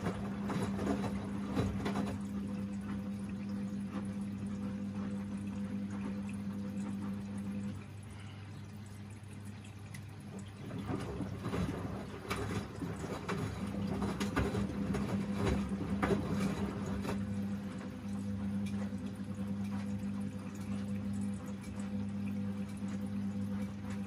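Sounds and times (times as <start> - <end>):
washing machine motor hum: 0.0 - 24.0
water sloshing in drum: 0.0 - 24.0.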